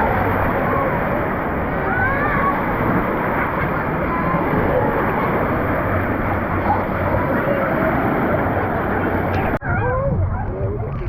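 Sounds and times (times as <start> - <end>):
water churning: 0.0 - 9.6
crowd chatter: 0.0 - 11.0
faint distant voices: 0.0 - 11.0.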